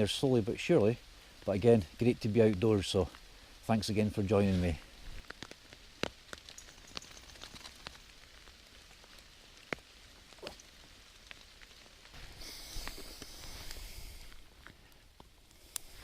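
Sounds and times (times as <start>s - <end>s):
raindrops ticking: 0.0s - 12.2s
steady rain: 0.0s - 16.0s
rushing hiss: 12.1s - 14.5s.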